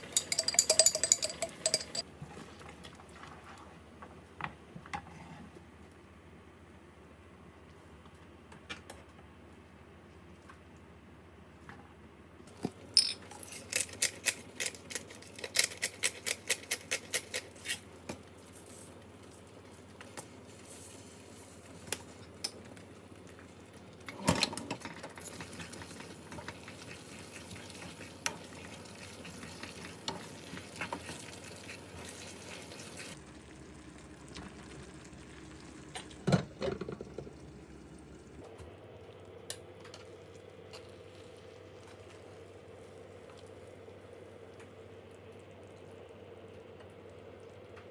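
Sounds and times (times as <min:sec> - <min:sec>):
cookware clanking: 0:00.0 - 0:02.0
utensil tapping cookware: 0:00.0 - 0:02.0
food sizzling in a pan: 0:25.2 - 0:35.9.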